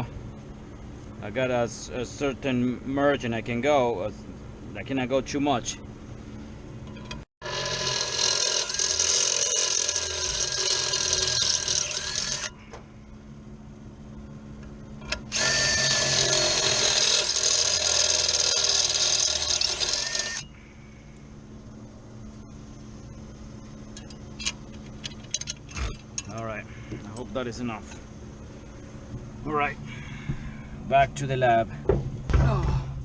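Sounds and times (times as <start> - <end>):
power drill boring into metal: 7.4 - 12.5, 15.1 - 20.5.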